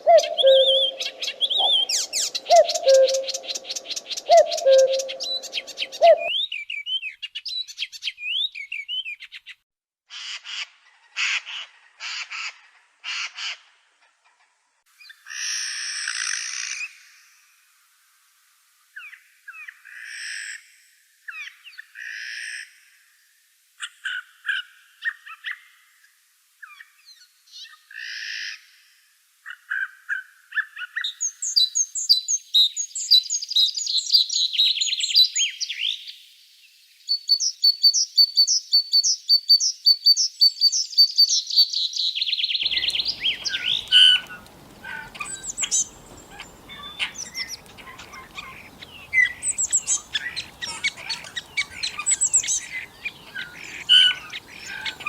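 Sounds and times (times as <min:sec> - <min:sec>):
faint background hiss: 0:00.0 - 0:06.3, 0:42.7 - 0:55.0
birds singing: 0:00.0 - 0:06.8, 0:42.6 - 0:55.0.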